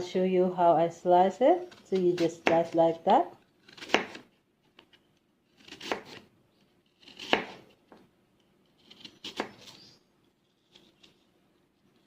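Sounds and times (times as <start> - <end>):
knife slicing apple: 1.6 - 4.4, 5.5 - 7.8, 8.7 - 9.8.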